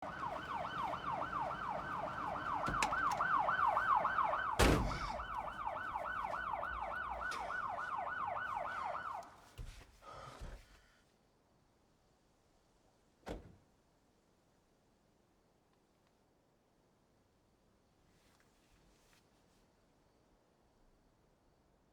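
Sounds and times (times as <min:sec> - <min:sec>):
police siren yelping: 0:00.0 - 0:09.3
loud thunk: 0:04.5 - 0:05.4.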